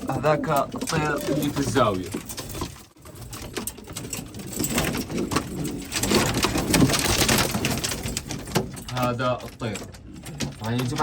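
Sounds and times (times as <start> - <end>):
pigeons cooing: 0.0 - 2.6.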